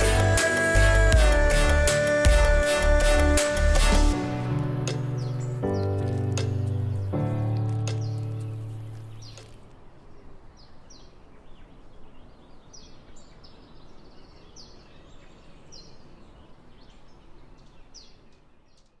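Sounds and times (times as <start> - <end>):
steady outdoor hiss: 0.0 - 19.0
bird chirping: 5.0 - 19.0.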